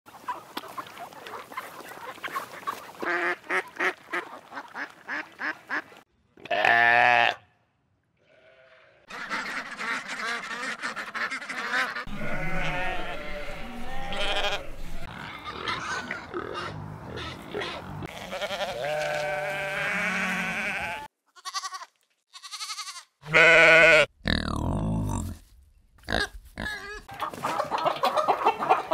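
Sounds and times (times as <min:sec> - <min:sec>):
wild animal calls: 0:12.1 - 0:19.4.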